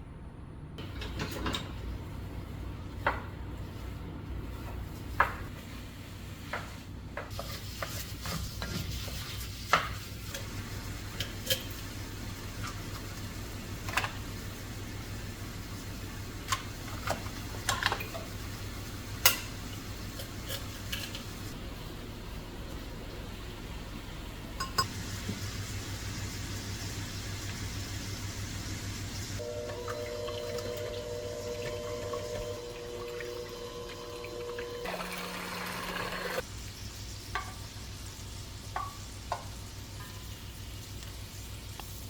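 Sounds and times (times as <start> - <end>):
utensils and dishes clinking: 0.8 - 1.8, 10.3 - 12.0, 16.5 - 18.3, 19.2 - 21.4, 24.6 - 25.0.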